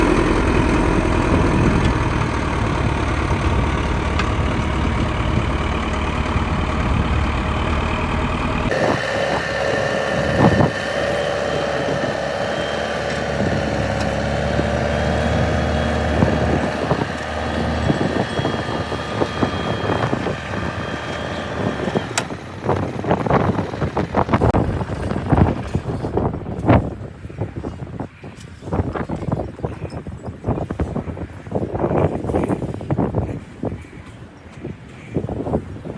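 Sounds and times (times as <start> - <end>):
knocks and clatter: 0.0 - 9.6, 10.3 - 26.9
diesel engine running: 0.0 - 26.6
engine whine: 0.0 - 27.6.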